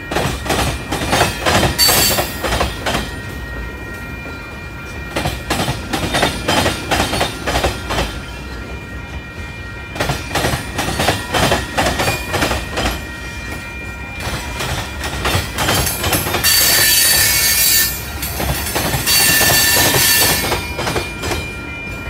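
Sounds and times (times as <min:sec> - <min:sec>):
wheels clicking over rail joints: 0:00.0 - 0:03.2, 0:09.9 - 0:21.6
high-pitched wheel squeal: 0:16.4 - 0:18.3, 0:19.0 - 0:20.6.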